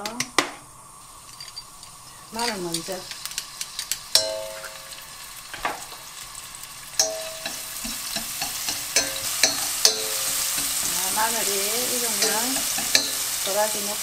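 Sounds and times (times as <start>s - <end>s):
garlic sizzling in oil: 0.0s - 14.0s
chopsticks tapping a pan: 2.4s - 6.0s, 7.0s - 14.0s.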